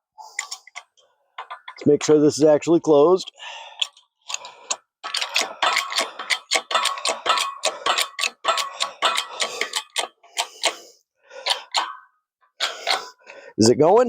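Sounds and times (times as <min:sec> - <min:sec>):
hydraulic jack pumping clicks: 0:03.7 - 0:12.0, 0:12.6 - 0:13.2.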